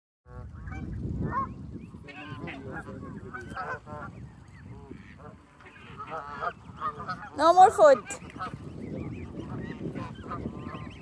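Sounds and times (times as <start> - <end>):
geese honking: 0.3 - 11.0.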